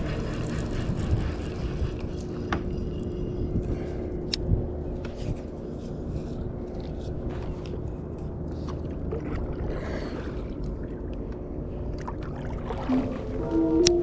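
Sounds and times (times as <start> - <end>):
small water sounds: 7.7 - 13.8
music: 12.9 - 14.0.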